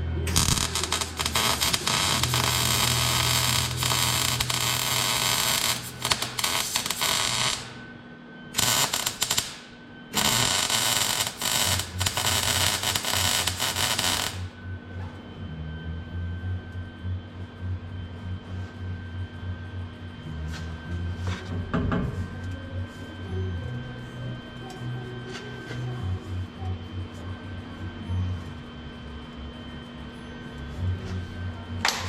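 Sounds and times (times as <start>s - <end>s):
welder crackling hiss: 0.3s - 7.8s, 8.6s - 14.5s.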